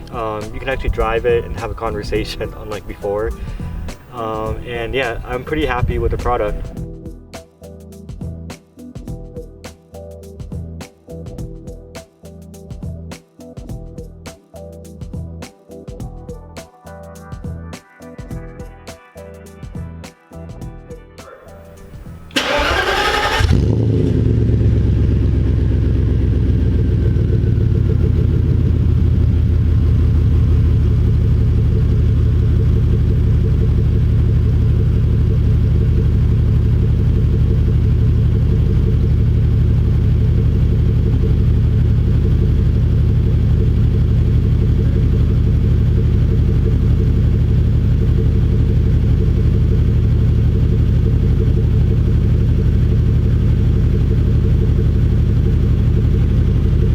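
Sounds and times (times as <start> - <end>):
car engine idling: 0.0 - 6.8, 21.5 - 56.9.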